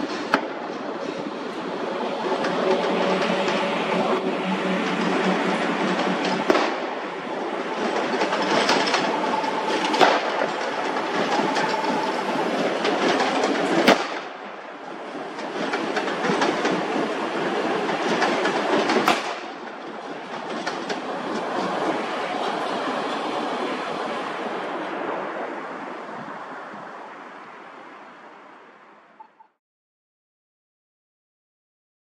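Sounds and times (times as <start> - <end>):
train wheels clattering on rails: 0.0 - 27.0
sharp cracks: 6.0 - 14.6, 17.9 - 21.0.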